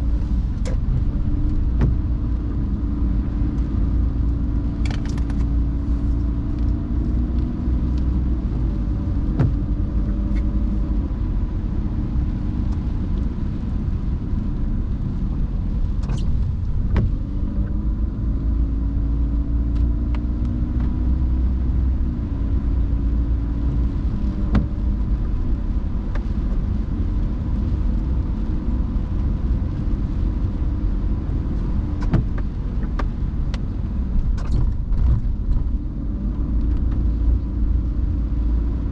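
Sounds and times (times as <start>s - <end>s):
car driving on wet road: 0.0s - 38.9s.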